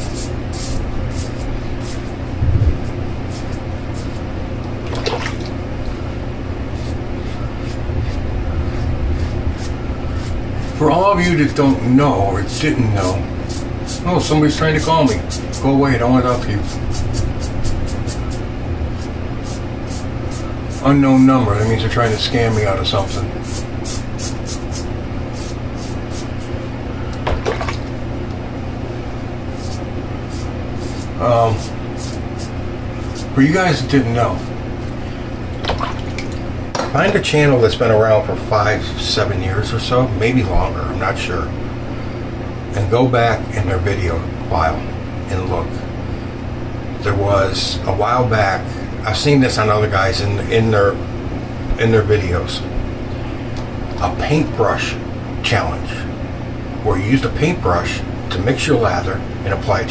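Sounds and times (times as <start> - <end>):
razor scratching stubble: 0.0 - 4.3, 6.8 - 11.8, 12.5 - 26.6, 29.5 - 35.0
steady low hum: 0.0 - 59.9.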